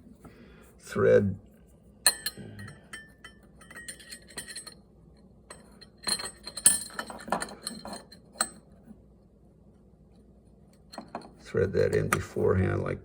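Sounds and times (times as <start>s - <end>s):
small metal clicks and clinks: 2.1s - 4.8s, 5.5s - 8.6s.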